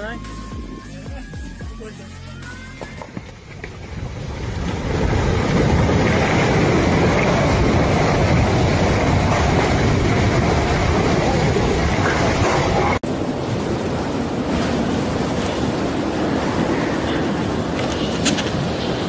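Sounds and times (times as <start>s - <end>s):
rumbling roar: 3.8s - 13.0s.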